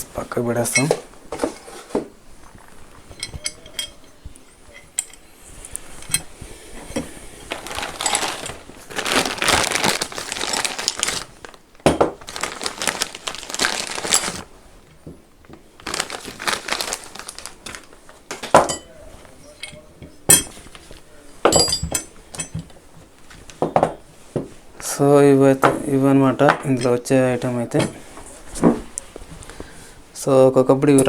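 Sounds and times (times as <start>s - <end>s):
packaging crinkling and rustling: 5.6s - 19.6s, 20.4s - 24.8s.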